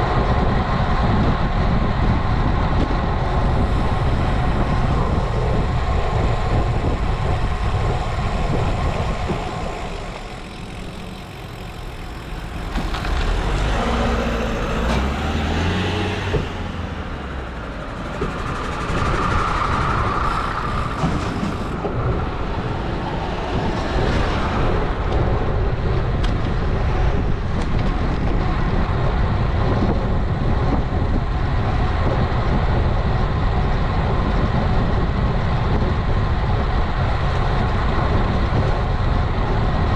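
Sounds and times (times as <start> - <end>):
wind rushing over microphone: 0.0 - 39.9
vehicle engine passing: 7.9 - 25.7.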